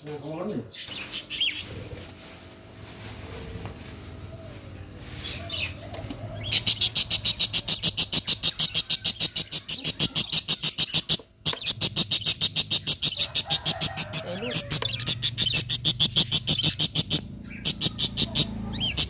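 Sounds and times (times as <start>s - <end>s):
cockatiel chicks calling: 0.8s - 1.8s, 5.0s - 19.0s.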